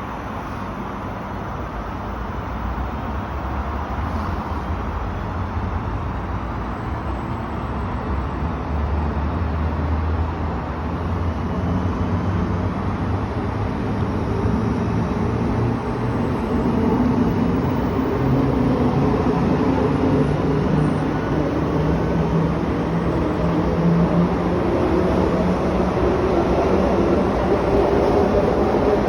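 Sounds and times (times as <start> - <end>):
electric train rumbling: 0.0 - 29.0.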